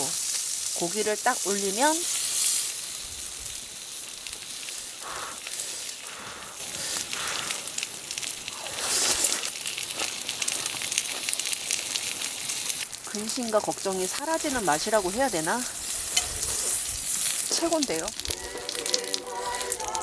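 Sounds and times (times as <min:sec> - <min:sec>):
meat sizzling on a grill: 0:00.0 - 0:20.0
wood fire crackling: 0:00.0 - 0:20.0.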